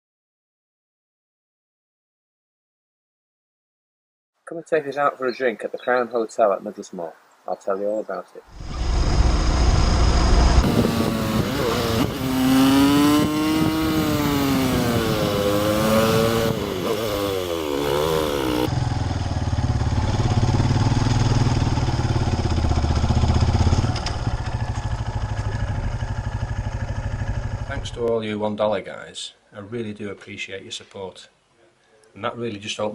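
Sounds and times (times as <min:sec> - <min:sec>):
motorcycle engine revving: 0:08.5 - 0:28.0.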